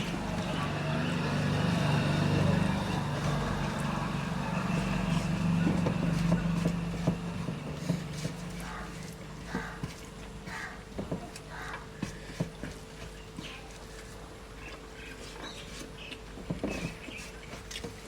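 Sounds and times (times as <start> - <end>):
low engine hum: 0.0 - 9.9.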